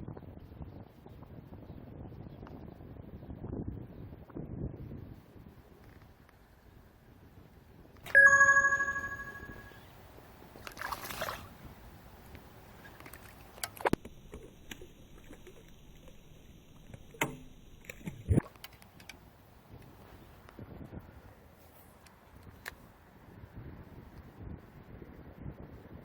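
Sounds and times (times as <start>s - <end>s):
bell-like ding: 8.1s - 9.8s.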